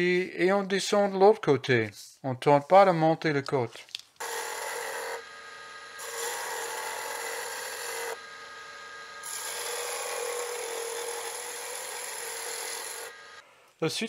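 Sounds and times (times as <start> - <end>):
gouge cutting wood on lathe: 4.2 - 13.4
lathe humming: 4.2 - 13.4.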